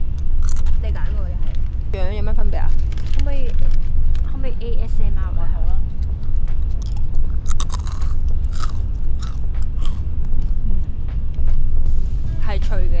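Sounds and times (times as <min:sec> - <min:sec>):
crisp snack crunching: 0:00.2 - 0:00.8, 0:06.0 - 0:10.5.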